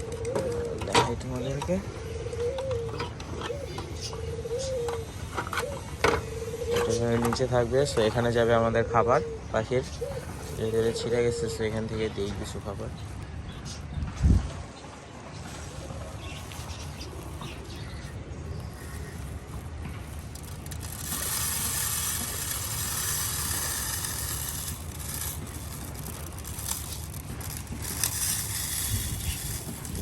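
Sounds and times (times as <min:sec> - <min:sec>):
seed pouring into plastic feeder: 0:18.8 - 0:30.0.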